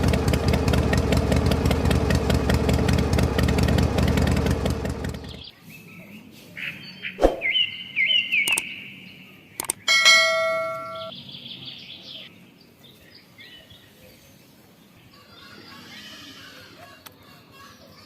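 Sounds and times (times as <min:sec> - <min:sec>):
birds chirping: 0:04.9 - 0:18.0
sharp clicks: 0:08.4 - 0:08.6, 0:09.6 - 0:09.9
metal ringing clang: 0:09.9 - 0:11.1.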